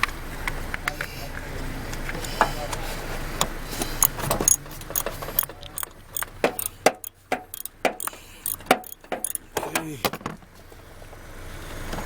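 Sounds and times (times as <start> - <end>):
hand tools clinking on metal: 3.9 - 9.7.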